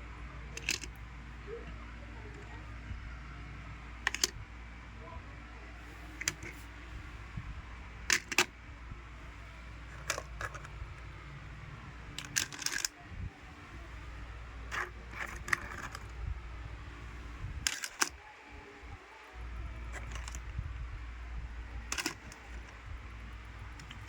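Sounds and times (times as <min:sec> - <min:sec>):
low steady hum: 0:00.0 - 0:24.0
toys clicking and clattering: 0:00.5 - 0:02.7, 0:04.0 - 0:04.4, 0:06.1 - 0:06.7, 0:08.0 - 0:08.5, 0:09.8 - 0:11.0, 0:12.1 - 0:13.0, 0:13.7 - 0:16.3, 0:17.1 - 0:24.0.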